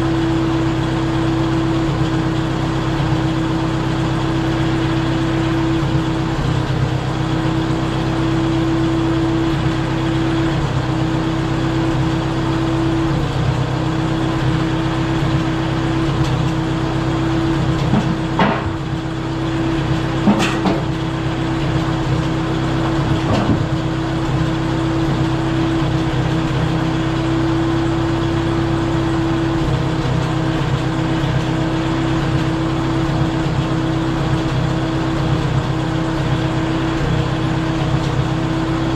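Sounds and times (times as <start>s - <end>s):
dozer engine running: 0.0s - 38.9s
sharp knocks: 18.0s - 18.9s.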